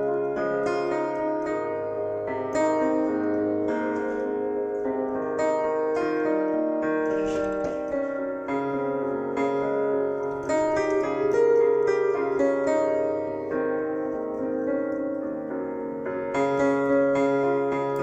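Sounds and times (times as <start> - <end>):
piano playing chords and melody: 0.0 - 18.0.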